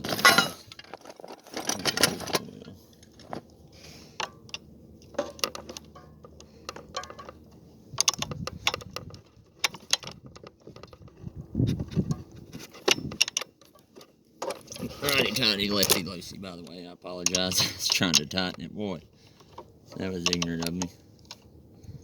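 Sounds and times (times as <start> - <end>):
metal hand tools clinking: 0.0 - 3.3.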